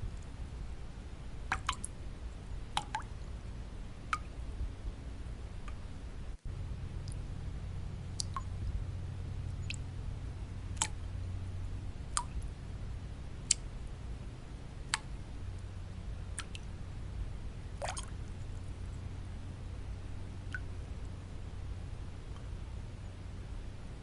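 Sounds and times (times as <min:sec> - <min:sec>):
low white noise: 0:00.0 - 0:24.0
water drops plinking into water: 0:01.5 - 0:01.9, 0:02.8 - 0:03.1, 0:07.0 - 0:07.2, 0:08.1 - 0:08.7, 0:10.7 - 0:11.0, 0:12.1 - 0:12.5, 0:14.9 - 0:15.2, 0:16.4 - 0:16.7, 0:17.8 - 0:18.3, 0:20.5 - 0:20.7.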